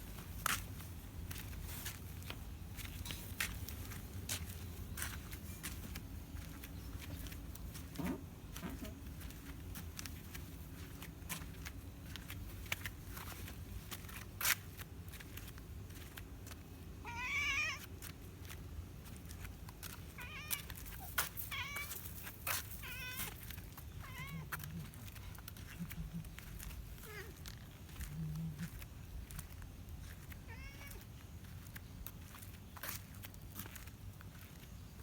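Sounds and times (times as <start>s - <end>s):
cat meowing: 17.0s - 17.9s, 20.2s - 20.7s, 21.5s - 22.0s, 22.8s - 23.3s, 24.0s - 24.5s, 27.0s - 27.4s, 30.4s - 31.0s.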